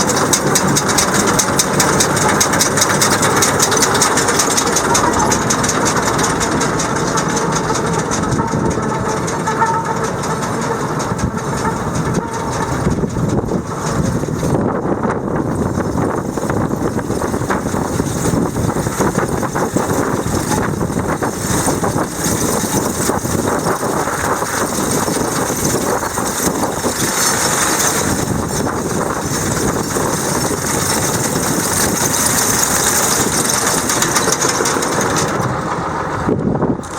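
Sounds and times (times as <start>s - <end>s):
tractor engine running: 0.0s - 36.9s.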